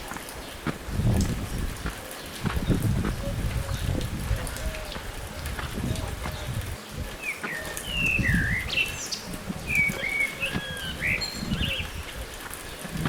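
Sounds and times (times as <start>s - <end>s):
songbird whistling: 7.5s - 11.9s.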